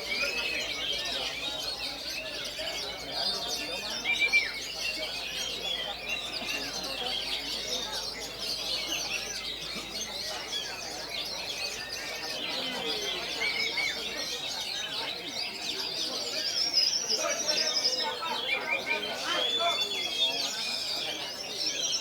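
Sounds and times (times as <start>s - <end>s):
chorus of songbirds singing: 0.0s - 22.0s.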